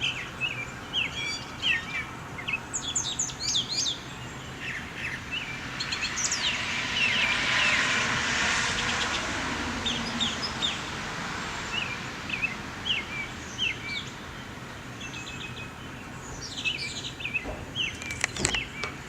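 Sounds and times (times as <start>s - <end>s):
bird chirping: 0.0s - 7.8s, 11.7s - 19.0s
steady background noise: 0.0s - 19.0s.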